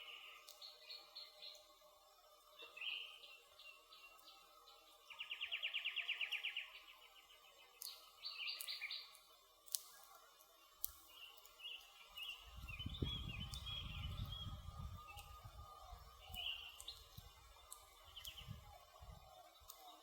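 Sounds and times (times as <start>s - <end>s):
birds chirping: 2.6s - 10.4s, 11.0s - 20.0s
wood fire crackling and popping: 9.6s - 10.2s.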